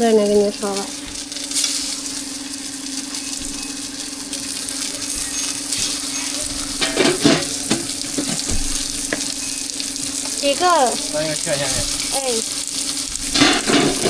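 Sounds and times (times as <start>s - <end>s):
food sizzling: 0.0s - 14.0s
steady hum: 0.0s - 14.0s
utensils clinking and scraping: 2.8s - 12.4s, 13.2s - 14.0s.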